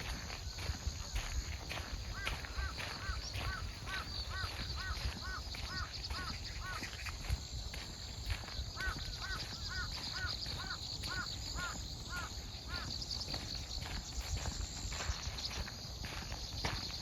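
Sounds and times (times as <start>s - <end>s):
insects chirring in grass: 0.0s - 17.0s
bird calling in short calls: 2.1s - 7.2s, 8.7s - 13.0s.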